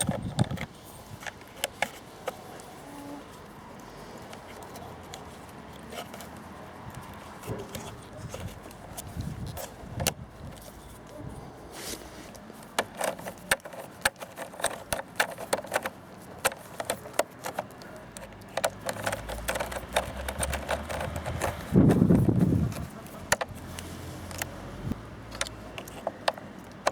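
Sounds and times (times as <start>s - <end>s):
hand tools clicking and tapping: 0.0s - 2.7s, 12.3s - 24.6s, 25.3s - 26.9s.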